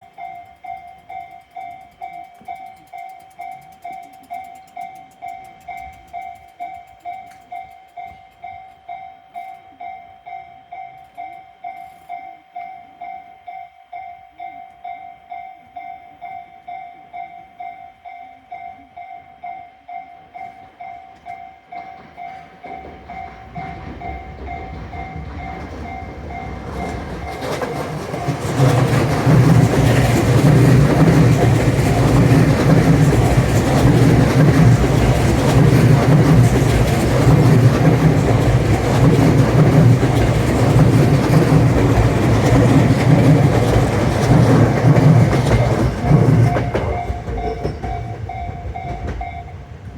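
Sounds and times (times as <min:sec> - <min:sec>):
two-tone level crossing alarm: 0:00.0 - 0:49.9
train wheels clattering over rail joints: 0:21.2 - 0:49.9.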